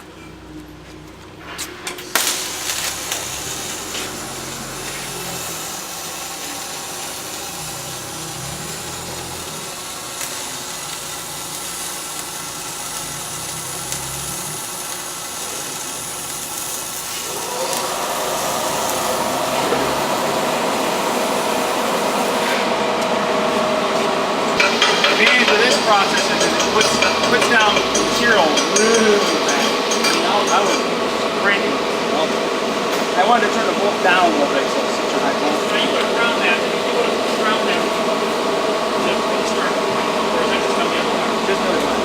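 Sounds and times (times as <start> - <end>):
welding arc crackling: 1.8 - 42.0
sputtering arc strikes: 2.0 - 22.8, 24.4 - 32.3.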